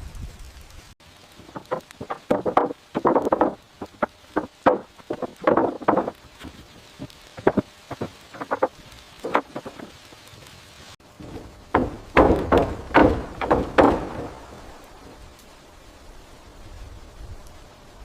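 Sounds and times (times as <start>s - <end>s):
tools knocking on timber: 1.5s - 6.6s, 7.4s - 9.9s, 11.2s - 14.4s.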